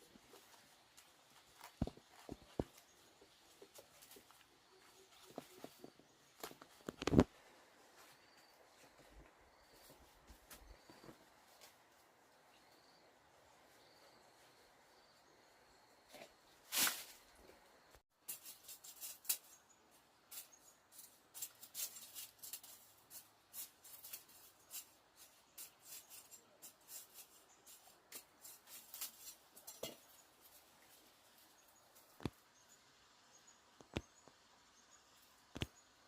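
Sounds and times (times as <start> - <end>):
light clicks and scrapes: 18.2 - 19.7, 20.3 - 32.5.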